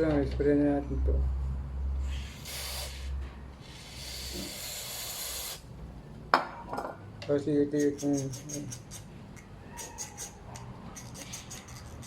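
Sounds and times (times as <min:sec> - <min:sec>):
aerosol spray hissing: 0:02.1 - 0:03.1, 0:03.7 - 0:05.6.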